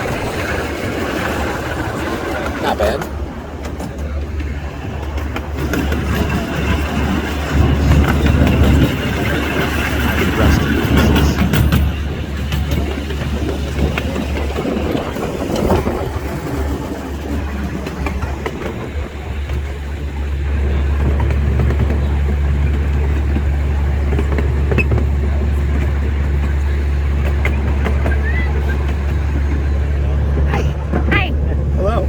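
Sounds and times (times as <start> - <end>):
train creaking: 0.0 - 32.0
train rumbling: 0.0 - 32.0.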